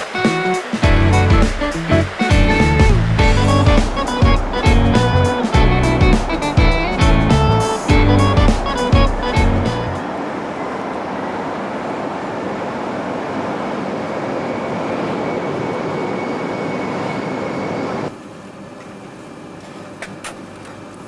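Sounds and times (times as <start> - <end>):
high speed train rushing: 0.0 - 18.6.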